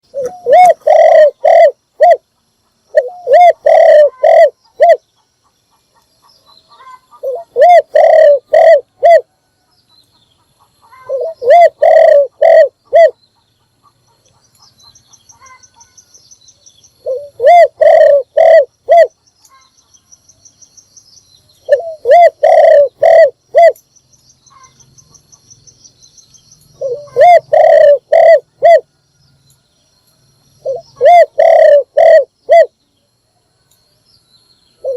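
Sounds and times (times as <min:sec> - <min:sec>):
dove cooing: 0:00.1 - 0:02.3, 0:02.9 - 0:05.0, 0:06.8 - 0:09.4, 0:10.9 - 0:13.2, 0:17.0 - 0:19.2, 0:21.6 - 0:23.8, 0:26.8 - 0:28.9, 0:30.6 - 0:32.8
small bird trilling: 0:24.4 - 0:25.8, 0:26.4 - 0:28.8.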